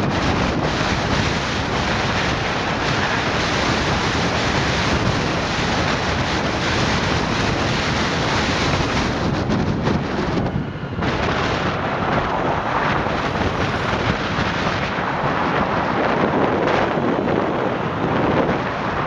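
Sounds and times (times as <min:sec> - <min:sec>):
wind buffeting microphone: 0:00.0 - 0:19.0
flooded river rushing: 0:11.0 - 0:16.8.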